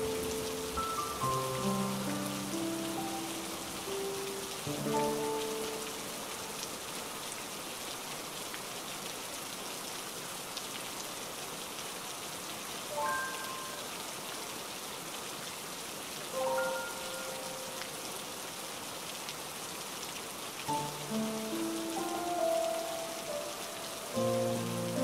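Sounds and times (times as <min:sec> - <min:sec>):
rain splashing on water: 0:00.0 - 0:25.0.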